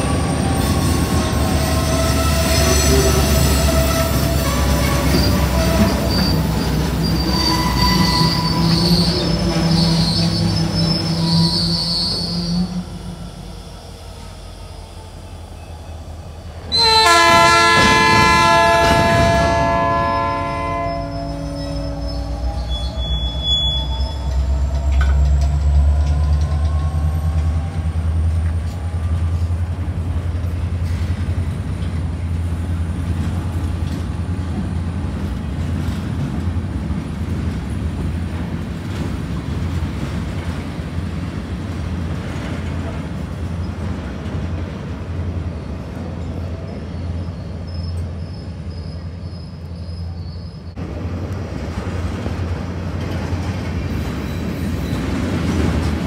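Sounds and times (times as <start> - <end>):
freight train rumbling: 0.0 - 56.0
locomotive air horn blast: 16.7 - 22.8.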